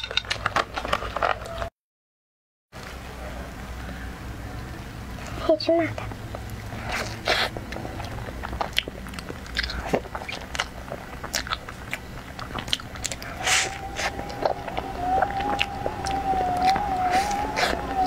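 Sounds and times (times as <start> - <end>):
biting and chewing pastry: 6.0 - 18.0
wet mouth clicks and smacks: 6.9 - 13.7.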